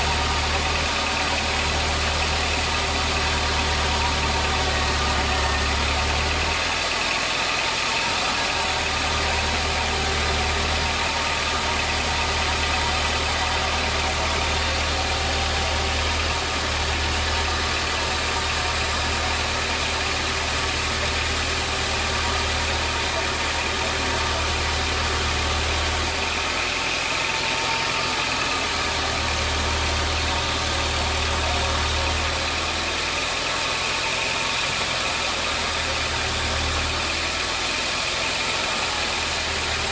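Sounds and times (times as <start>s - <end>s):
sawmill machinery hum: 0.0s - 39.9s.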